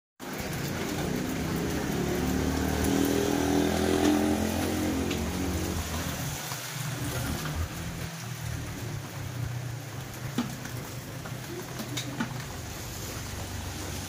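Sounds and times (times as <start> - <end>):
rain falling on road and leaves: 0.2 - 14.0
motorcycle passing by: 0.3 - 14.0.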